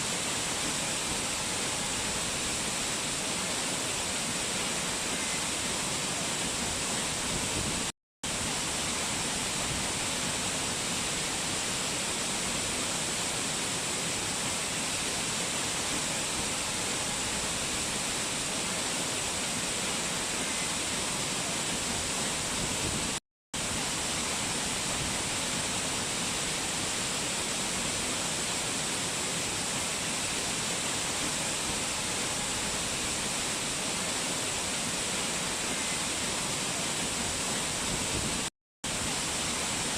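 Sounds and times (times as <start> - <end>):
fast-flowing mountain water: 0.0 - 39.9.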